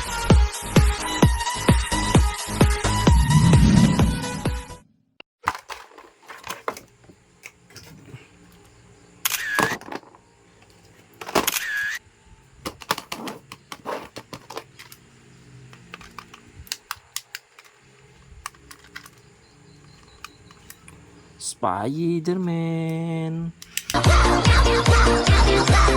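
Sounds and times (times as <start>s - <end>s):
plastic toy and packaging handled: 5.4s - 8.7s, 12.6s - 15.1s, 15.7s - 19.3s.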